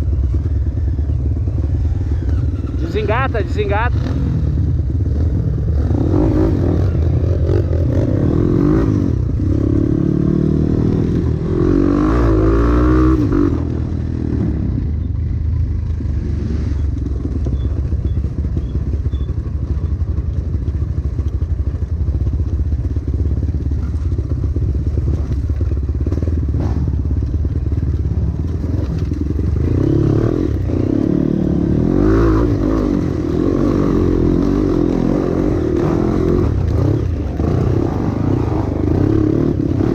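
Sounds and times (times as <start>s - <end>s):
motorcycle engine revving: 0.0s - 39.9s
bike rattling over rough ground: 14.6s - 39.9s.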